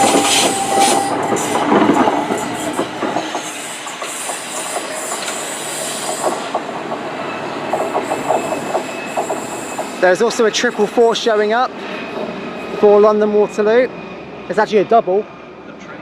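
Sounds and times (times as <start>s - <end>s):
train wheels clattering over rail joints: 0.0s - 10.1s
thin steady squealing tone: 7.1s - 14.5s.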